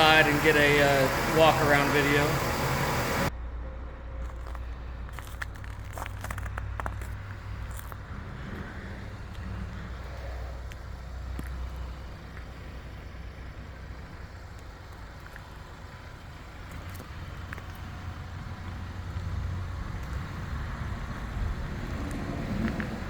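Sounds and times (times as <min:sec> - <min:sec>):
car engine running: 0:00.0 - 0:03.3.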